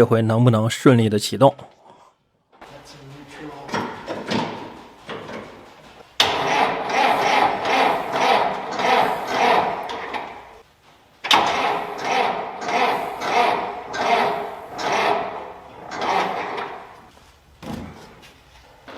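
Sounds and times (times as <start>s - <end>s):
engine starter cranking: 3.6s - 10.6s, 11.2s - 17.1s.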